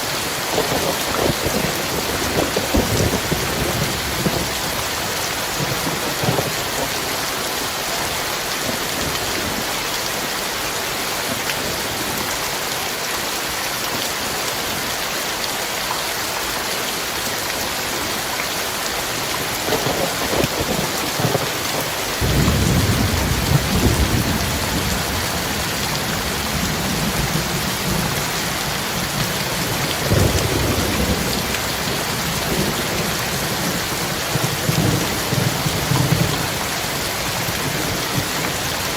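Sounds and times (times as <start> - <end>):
heavy rain falling: 0.0 - 38.9
thunder rumbling: 0.5 - 7.2, 19.1 - 38.9.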